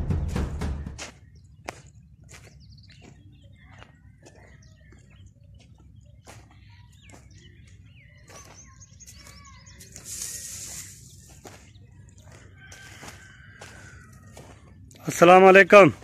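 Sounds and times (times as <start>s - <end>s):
small birds chirping: 0.8s - 16.0s
burst of hissing noise: 9.8s - 11.3s.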